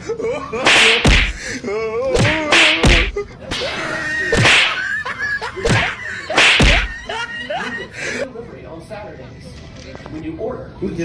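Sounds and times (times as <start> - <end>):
sharp loud impacts: 0.6 - 1.4, 2.2 - 3.7, 4.4 - 4.8, 5.7 - 6.9.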